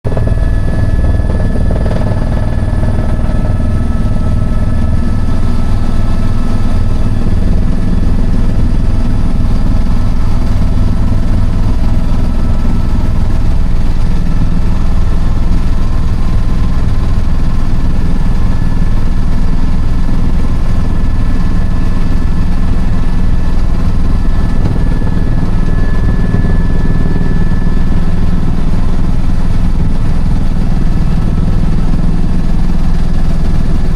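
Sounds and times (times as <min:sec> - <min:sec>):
helicopter engine and rotors rumbling: 0:00.0 - 0:33.9
thin high whines: 0:00.1 - 0:14.8, 0:23.6 - 0:29.0.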